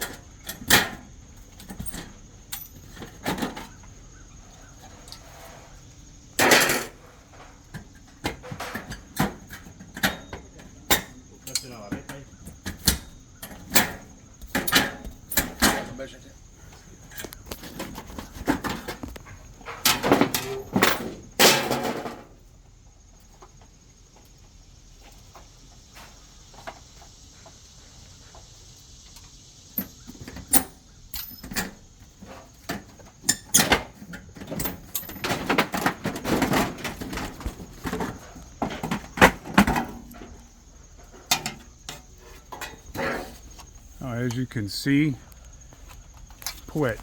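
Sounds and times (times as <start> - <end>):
siding clattering and scraping: 0.0 - 22.5, 29.8 - 44.4.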